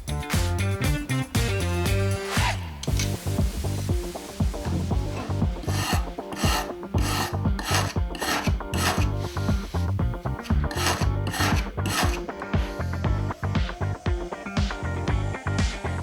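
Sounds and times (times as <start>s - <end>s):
background music with beat: 0.0s - 16.0s
rasping scraping strokes: 4.6s - 13.0s.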